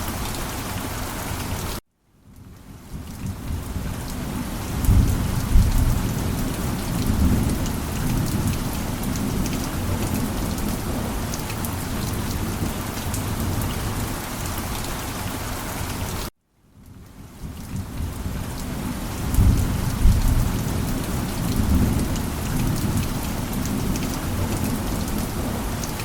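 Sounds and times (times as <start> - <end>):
heavy rain falling: 0.0 - 16.3, 16.9 - 26.0
low rolling thunder: 2.9 - 14.0, 17.7 - 26.0.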